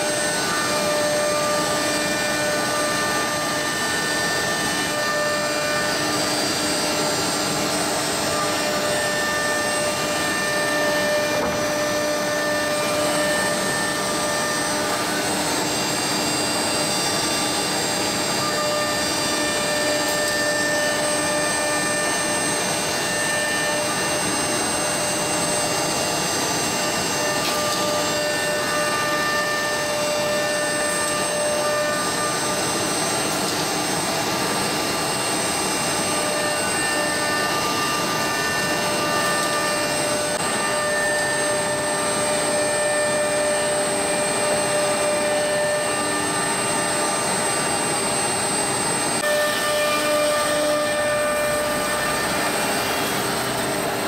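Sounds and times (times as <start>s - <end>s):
router machine rushing noise: 0.0s - 54.0s.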